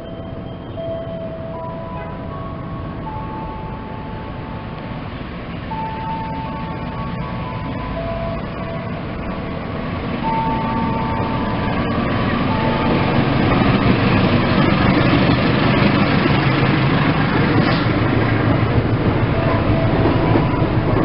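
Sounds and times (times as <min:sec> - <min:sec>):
train rumbling through station: 0:00.0 - 0:21.0.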